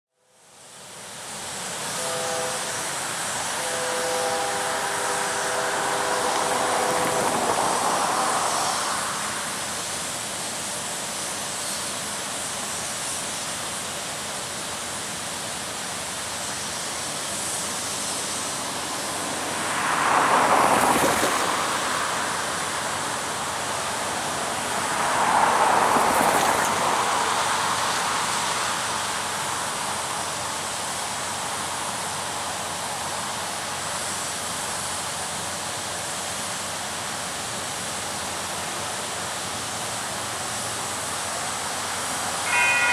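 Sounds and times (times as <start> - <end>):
diesel locomotive horn: 1.8 - 9.6, 19.0 - 23.8, 42.2 - 42.9
steady rushing noise: 4.8 - 42.9.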